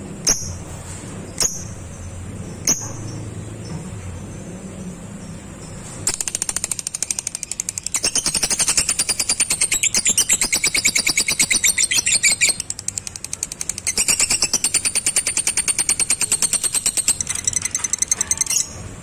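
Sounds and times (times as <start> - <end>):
lovebird chattering trill: 6.1 - 18.8.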